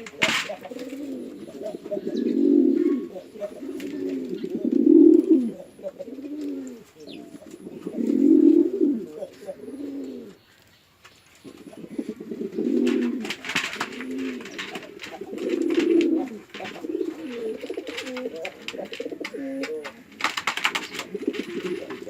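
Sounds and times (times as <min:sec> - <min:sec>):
pigeons cooing: 0:00.0 - 0:10.6, 0:11.3 - 0:22.0
sharp clattering clicks: 0:12.8 - 0:22.0.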